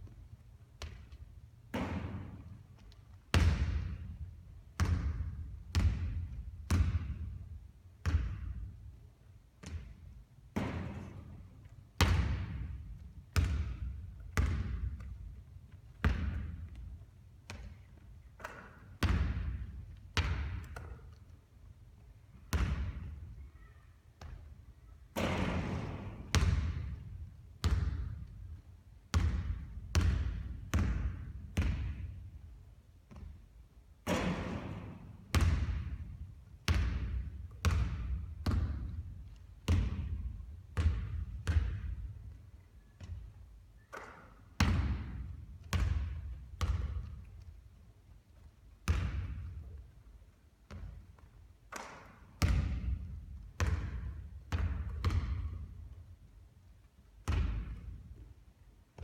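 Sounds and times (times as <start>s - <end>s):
basketball bouncing on hard court: 0.8s - 4.2s, 4.8s - 8.9s, 9.6s - 11.4s, 12.0s - 21.2s, 22.5s - 23.3s, 24.2s - 32.2s, 33.1s - 33.4s, 34.0s - 42.4s, 43.9s - 47.5s, 48.8s - 49.8s, 50.7s - 56.1s, 57.2s - 58.2s.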